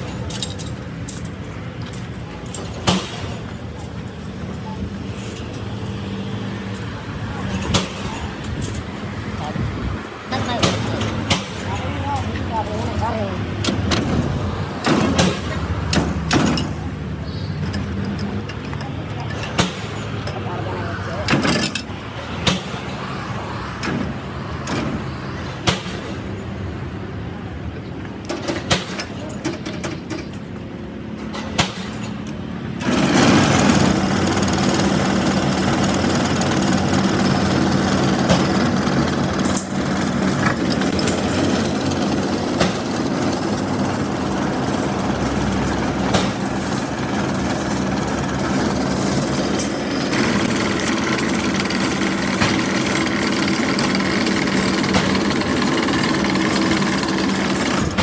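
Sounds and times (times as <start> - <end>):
machine motor humming: 32.8 - 58.0.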